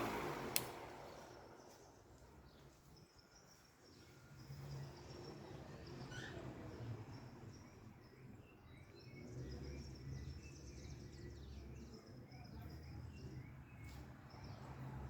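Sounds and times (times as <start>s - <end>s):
wall fan humming: 0.0s - 2.3s
small birds chirping: 0.6s - 15.0s.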